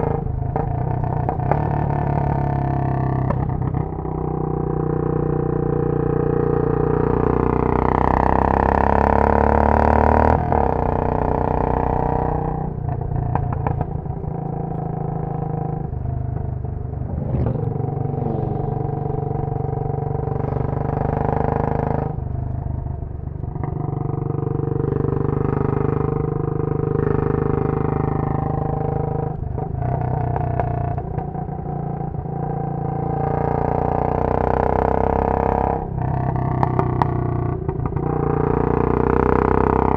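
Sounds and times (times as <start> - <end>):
motorcycle engine revving: 0.0 - 39.9
exhaust crackles: 15.8 - 20.8.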